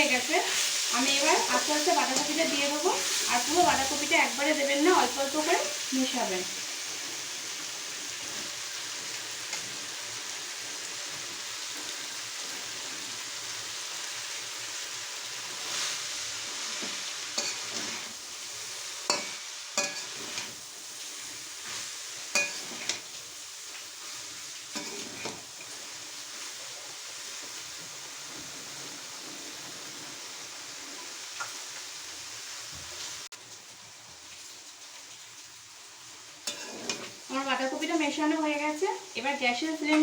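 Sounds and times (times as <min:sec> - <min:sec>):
meat sizzling in a frying pan: 0:00.0 - 0:40.0
utensil scraping a pan: 0:16.6 - 0:18.2, 0:24.7 - 0:25.7, 0:36.5 - 0:37.2.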